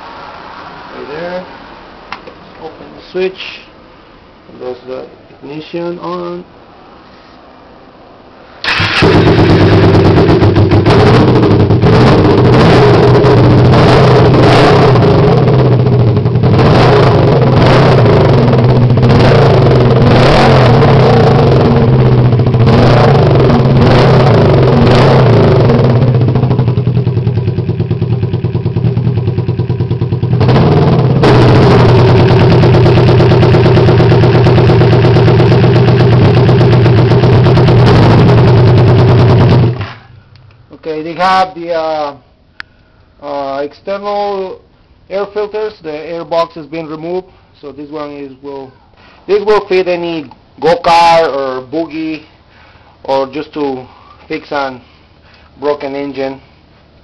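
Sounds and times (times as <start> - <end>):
motorcycle engine revving: 8.6 - 40.1.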